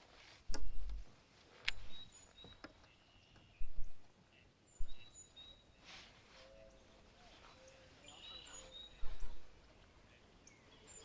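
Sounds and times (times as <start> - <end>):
faint bird chirps: 0.5 - 11.0
sharp clicks: 1.6 - 1.9.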